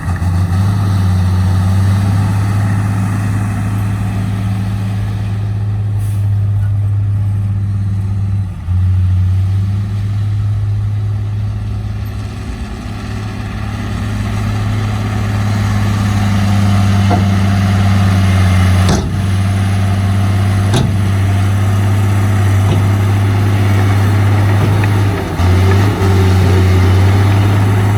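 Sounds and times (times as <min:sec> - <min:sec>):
diesel truck engine humming: 0:00.0 - 0:27.9
sharp knocks: 0:17.0 - 0:19.8, 0:20.6 - 0:27.9.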